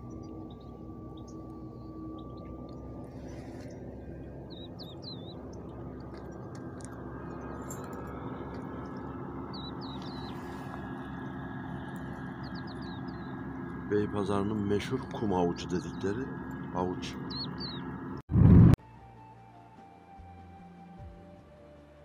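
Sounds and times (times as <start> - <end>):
small bird chirping: 0.0 - 6.5, 8.4 - 13.5, 17.2 - 18.0
low engine hum: 0.0 - 18.8.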